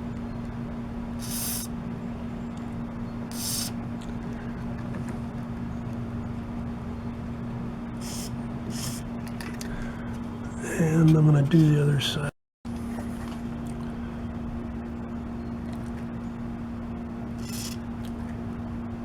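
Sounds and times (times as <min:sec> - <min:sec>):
steady low hum: 0:00.0 - 0:19.0
aerosol can spraying hisses: 0:01.2 - 0:01.7, 0:03.3 - 0:03.8, 0:08.0 - 0:09.0, 0:17.4 - 0:17.8.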